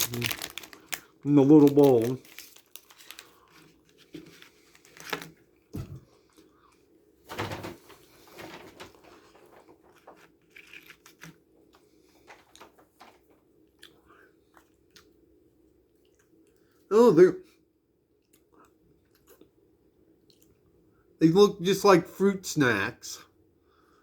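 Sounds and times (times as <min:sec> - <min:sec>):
plastic candy packaging rustling: 0:00.0 - 0:06.5, 0:07.8 - 0:13.4.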